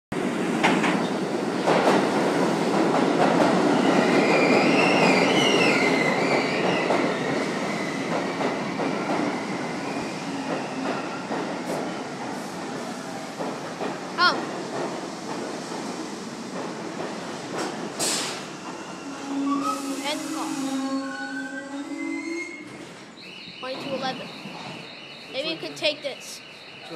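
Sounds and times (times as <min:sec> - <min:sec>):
subway car rumble: 0:00.1 - 0:26.9
high-pitched wheel squeal: 0:18.8 - 0:23.0.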